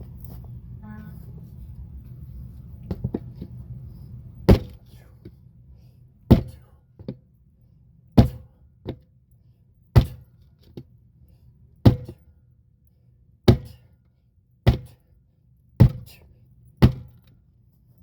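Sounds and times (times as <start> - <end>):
heavy strikes on tractor tire: 4.5 - 4.8, 6.3 - 7.2, 8.2 - 9.0, 9.9 - 10.4, 11.8 - 12.3, 13.4 - 13.9, 14.6 - 15.0, 15.8 - 16.2, 16.8 - 17.3.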